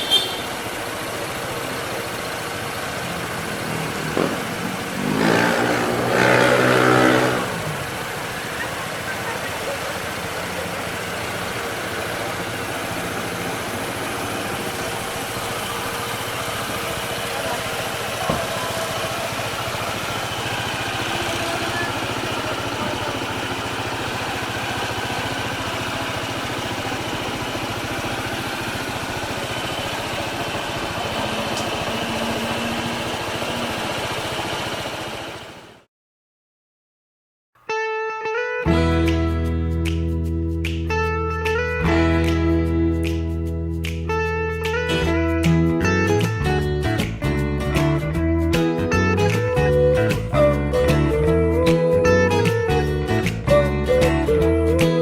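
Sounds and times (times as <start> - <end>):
motorcycle engines idling: 0.0 - 35.9
street traffic noise: 0.0 - 35.9, 38.7 - 55.0.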